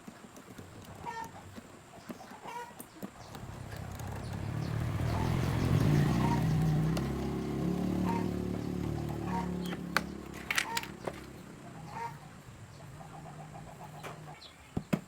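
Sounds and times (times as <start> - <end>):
vehicle engine running: 3.2 - 14.6.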